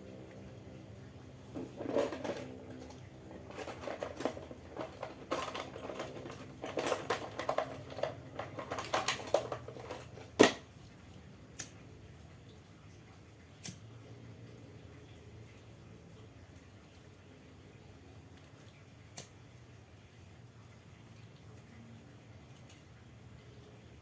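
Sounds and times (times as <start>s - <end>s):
small clicks taps and rustles: 1.5s - 10.7s.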